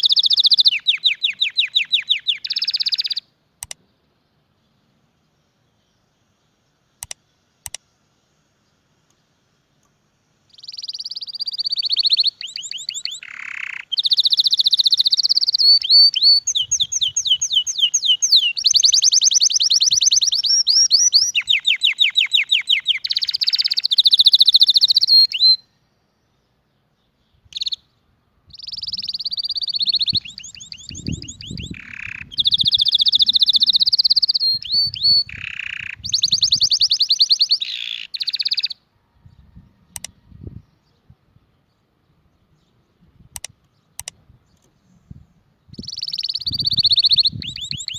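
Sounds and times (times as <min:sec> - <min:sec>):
canary singing trills: 0:00.0 - 0:03.8, 0:10.5 - 0:25.8, 0:26.8 - 0:41.2, 0:45.6 - 0:47.9.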